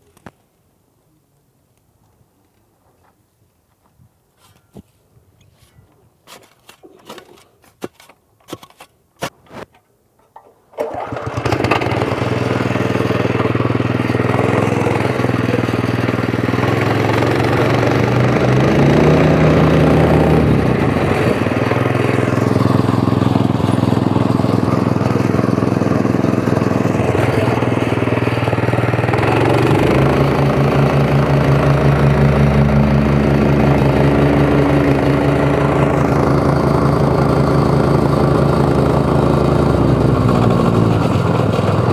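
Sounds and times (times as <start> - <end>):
compactor engine running: 10.7 - 41.9.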